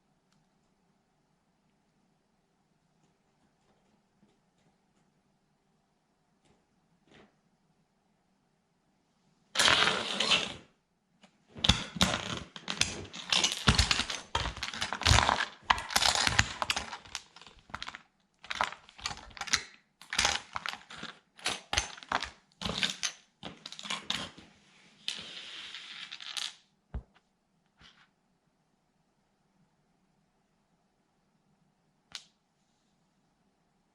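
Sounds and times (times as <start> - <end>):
plastic toy cracking underfoot: 11.6 - 24.4.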